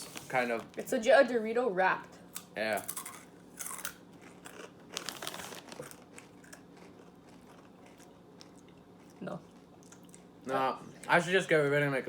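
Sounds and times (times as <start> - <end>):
chip bag crinkling: 2.8 - 8.6
tortilla chips crunching: 2.8 - 10.3.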